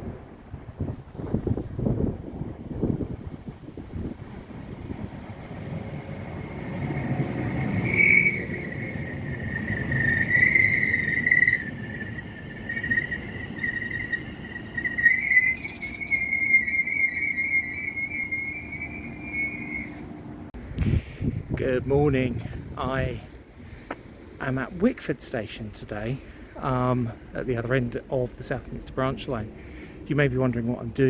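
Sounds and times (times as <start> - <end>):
train rumbling: 0.0 - 31.0
train wheels squealing: 5.3 - 20.5.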